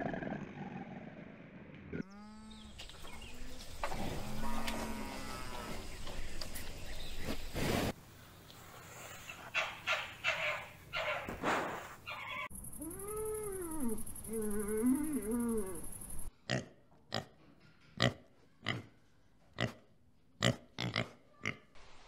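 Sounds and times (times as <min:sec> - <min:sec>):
cattle mooing: 0:03.8 - 0:05.9.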